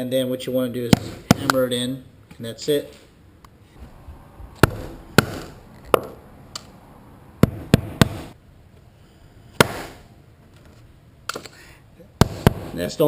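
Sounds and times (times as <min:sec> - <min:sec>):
hammer striking rivet: 0:04.6 - 0:06.2, 0:07.4 - 0:08.3, 0:09.6 - 0:10.0, 0:12.2 - 0:12.8.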